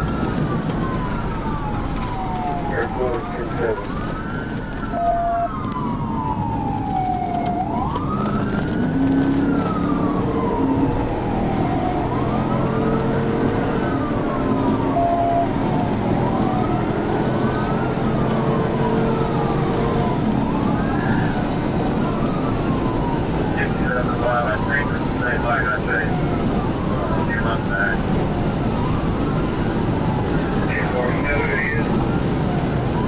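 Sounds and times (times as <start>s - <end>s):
car road noise at speed: 0.0s - 33.0s
police siren wailing: 0.0s - 33.0s.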